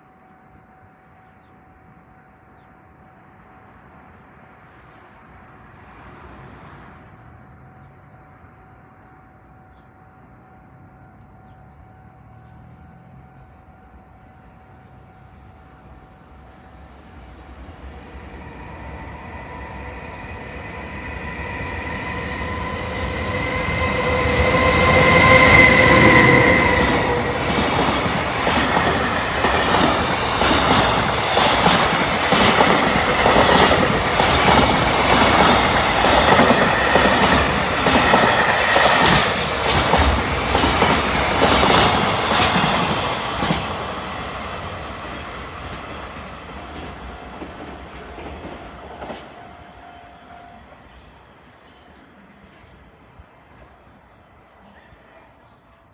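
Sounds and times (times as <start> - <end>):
electric locomotive whine: 0.0 - 55.9
train wheels clicking on rail joints: 19.8 - 49.6.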